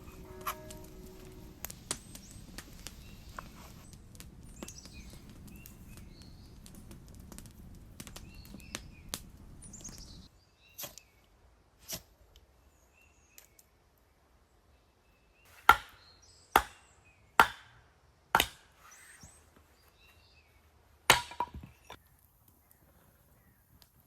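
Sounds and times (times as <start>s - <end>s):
firewood chopping: 15.5s - 16.0s, 16.6s - 16.8s, 17.4s - 17.8s, 18.4s - 18.8s, 21.1s - 21.9s.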